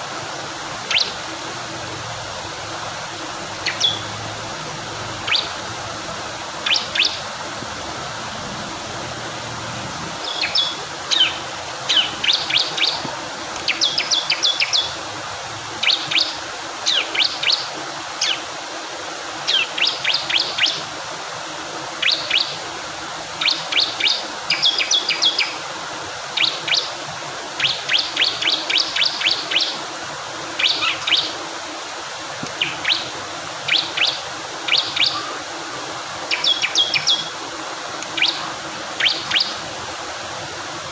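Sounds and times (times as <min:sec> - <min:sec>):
rushing water: 0:00.0 - 0:40.9
bird high sharp chirps: 0:03.6 - 0:04.1, 0:05.2 - 0:05.6, 0:10.2 - 0:13.0, 0:36.3 - 0:37.3, 0:38.1 - 0:39.6.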